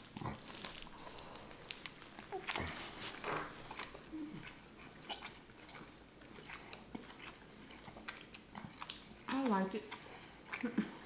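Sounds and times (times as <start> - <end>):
faint chewing: 0.0 - 11.0.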